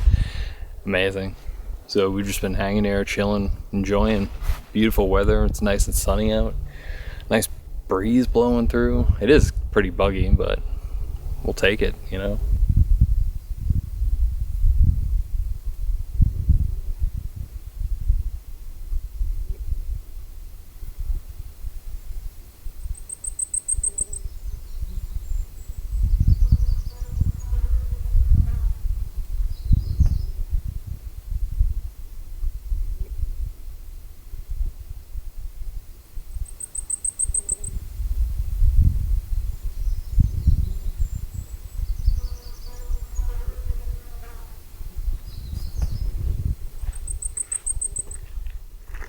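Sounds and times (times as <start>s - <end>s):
wind buffeting microphone: 0.0s - 23.0s, 23.8s - 49.0s
insect buzzing: 12.6s - 32.8s, 33.6s - 49.0s.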